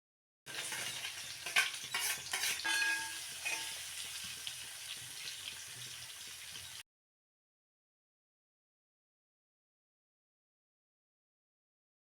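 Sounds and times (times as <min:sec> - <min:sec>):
utensil scraping a pan: 0:00.5 - 0:04.5
food sizzling in a pan: 0:00.5 - 0:06.8
short metallic ring: 0:02.6 - 0:03.7.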